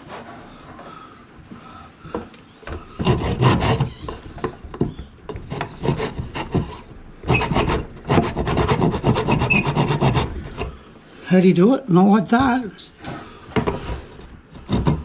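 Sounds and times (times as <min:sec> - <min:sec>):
hand tool rasping wood: 0:02.7 - 0:10.8, 0:13.6 - 0:15.0.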